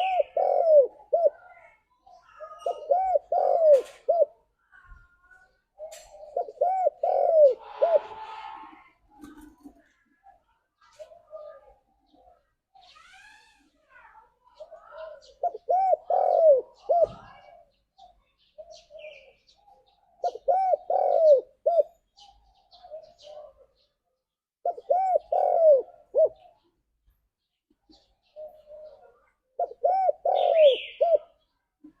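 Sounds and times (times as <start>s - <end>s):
dove cooing: 0.0s - 4.5s, 5.8s - 9.7s, 14.6s - 23.9s, 24.6s - 26.7s, 27.9s - 32.0s.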